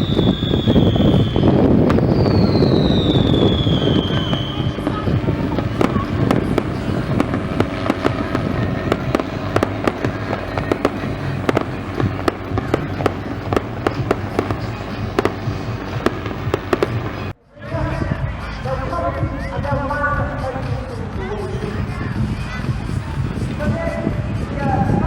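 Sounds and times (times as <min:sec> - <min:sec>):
fireworks popping and banging: 0:00.0 - 0:17.4
crackling rumble: 0:00.0 - 0:21.1.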